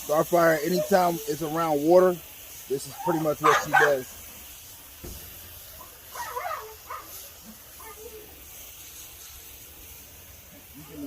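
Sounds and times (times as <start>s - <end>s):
water spraying from hose: 0.0s - 11.0s
dog whining: 0.6s - 1.4s.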